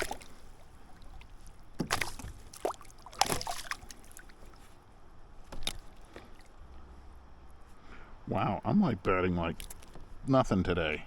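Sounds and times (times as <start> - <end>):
fish splashing in water: 0.0 - 4.6.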